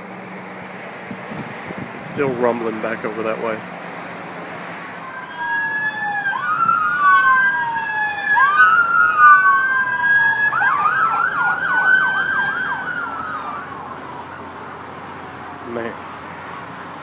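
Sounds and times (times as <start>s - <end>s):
emergency vehicle sirens wailing: 0.0s - 17.0s
siren fast yelp: 5.0s - 14.5s.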